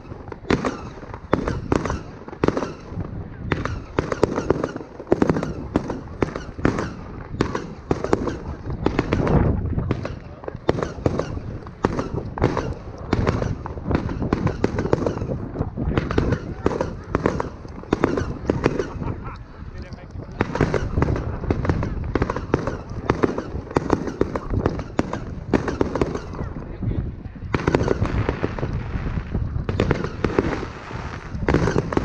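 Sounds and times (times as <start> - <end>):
fireworks bangs and crackles: 0.0 - 32.0
rumble of blasts: 0.0 - 32.0.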